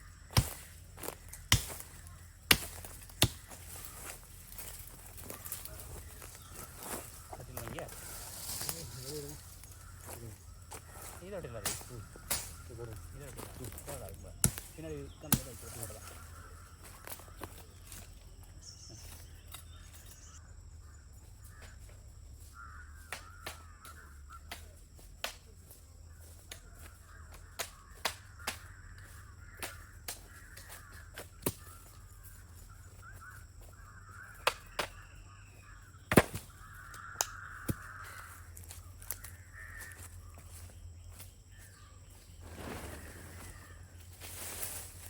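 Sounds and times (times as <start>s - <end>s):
birds calling: 0.0s - 45.0s
sharp knocks and snaps: 23.1s - 25.5s, 27.6s - 31.7s, 34.4s - 35.0s, 36.1s - 38.0s.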